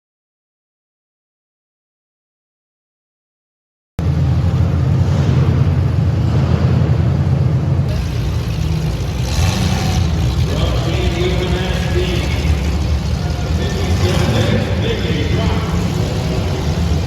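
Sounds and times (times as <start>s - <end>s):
car engine running: 4.0s - 17.0s.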